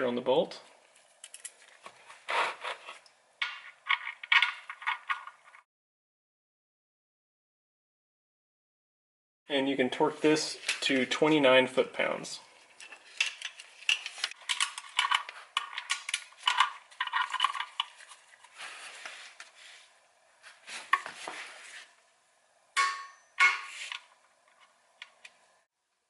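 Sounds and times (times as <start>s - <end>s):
sharp ringing knocks: 22.8s - 23.7s.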